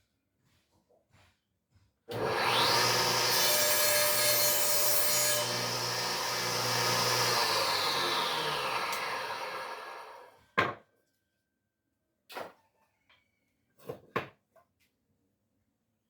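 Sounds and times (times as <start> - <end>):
power tool motor whine: 2.1 - 10.4
sawing wood: 2.1 - 10.4.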